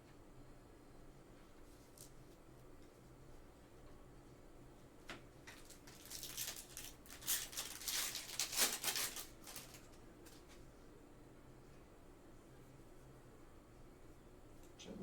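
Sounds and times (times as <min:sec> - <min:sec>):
trading cards rustling: 0:05.5 - 0:10.5.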